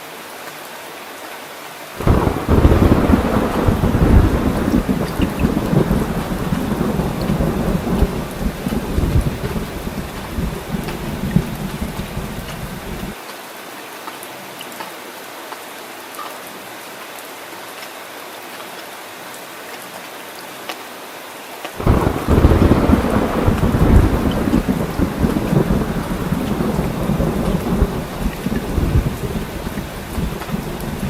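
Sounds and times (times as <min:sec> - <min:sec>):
steady rain falling: 0:00.0 - 0:31.0
thunder rumbling: 0:02.0 - 0:13.2, 0:21.8 - 0:31.0.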